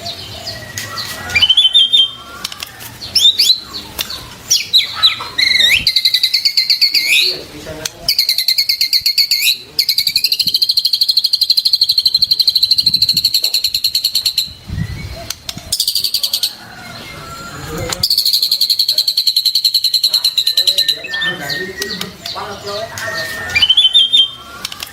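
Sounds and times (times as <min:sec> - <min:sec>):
bird pulsing trills: 0:00.0 - 0:02.5, 0:18.1 - 0:24.9
soft low bird chatter: 0:00.0 - 0:24.9.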